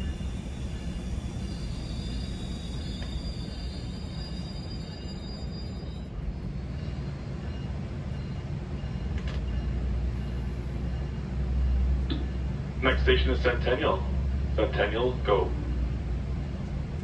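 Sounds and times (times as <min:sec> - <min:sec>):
passenger train rumbling on rails: 0:00.0 - 0:17.0.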